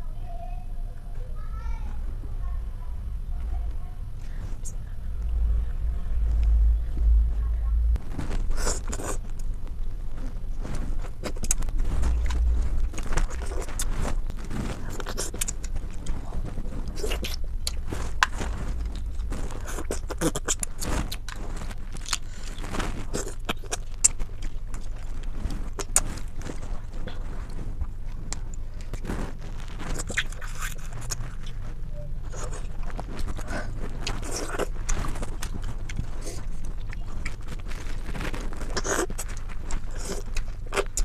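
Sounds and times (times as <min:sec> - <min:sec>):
steady low rumble: 0:00.0 - 0:41.0.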